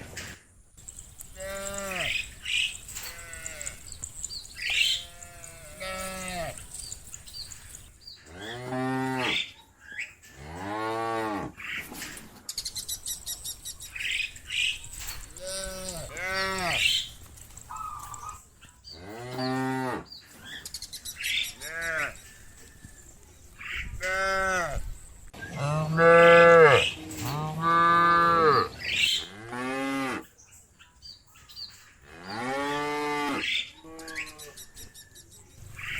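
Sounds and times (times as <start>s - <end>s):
cows mooing: 1.4s - 2.4s, 3.0s - 4.0s, 4.6s - 6.7s, 8.3s - 9.5s, 15.4s - 17.0s, 19.0s - 20.1s, 24.0s - 24.8s, 25.5s - 30.2s, 32.1s - 34.6s.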